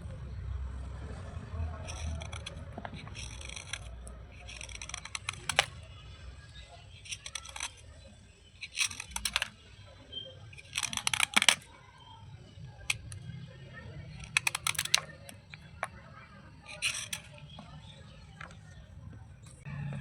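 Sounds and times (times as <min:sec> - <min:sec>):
slate pieces crunching: 0:01.8 - 0:05.8, 0:07.0 - 0:07.8, 0:10.5 - 0:11.7, 0:14.1 - 0:16.0, 0:16.7 - 0:18.7.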